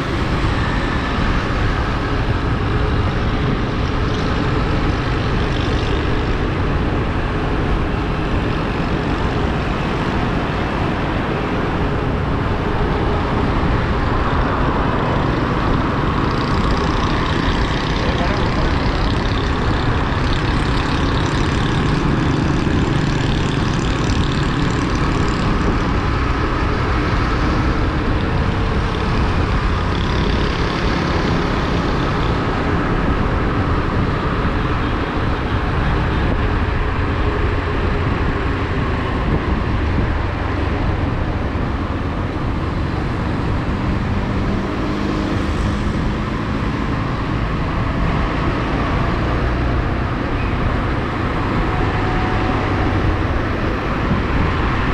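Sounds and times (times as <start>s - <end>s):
wind rush over microphone: 0.0s - 54.9s
motorcycle engine running: 15.1s - 38.8s.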